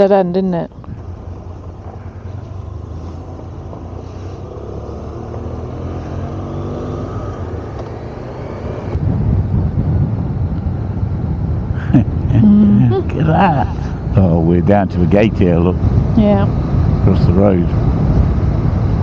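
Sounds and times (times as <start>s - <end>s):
wind rumble on microphone: 0.5s - 4.0s, 8.6s - 19.0s.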